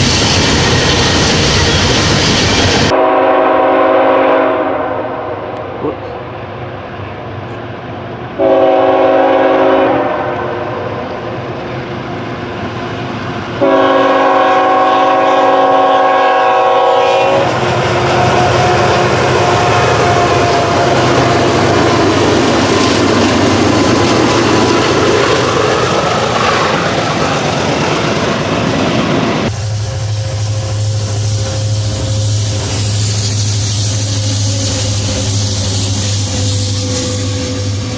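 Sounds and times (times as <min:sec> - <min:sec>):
locomotive air horn: 0:02.9 - 0:05.7, 0:08.4 - 0:11.0, 0:13.6 - 0:22.1, 0:29.5 - 0:37.9
train wheels clicking over rails: 0:17.3 - 0:37.9.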